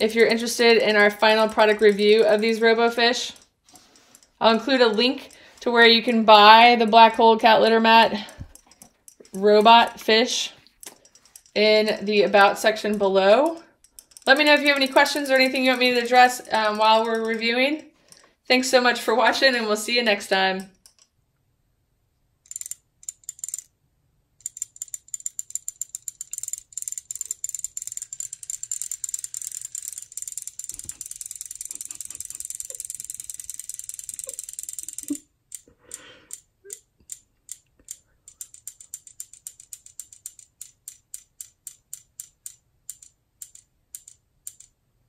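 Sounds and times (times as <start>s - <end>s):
fast mechanical clicking: 12.6s - 18.2s, 22.5s - 23.7s, 24.4s - 35.7s, 36.3s - 44.7s.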